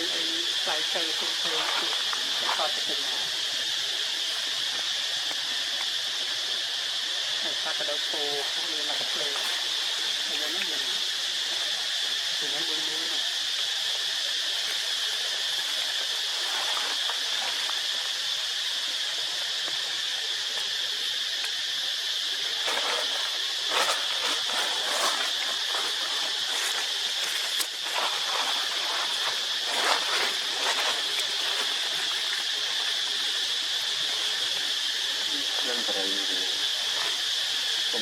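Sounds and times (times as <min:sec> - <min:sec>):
high-pitched insect drone: 0:00.0 - 0:38.0.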